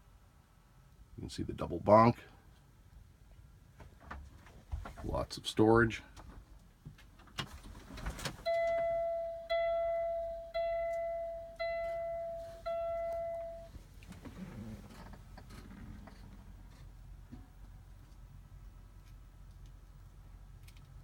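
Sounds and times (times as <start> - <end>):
truck cab warning chime: 8.4 - 13.8.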